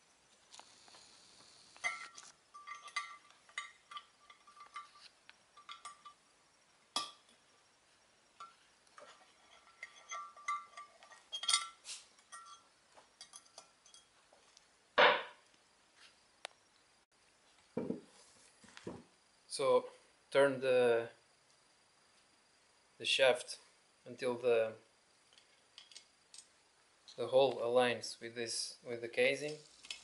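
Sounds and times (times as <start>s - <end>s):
steel gear parts clinking: 1.8s - 6.2s.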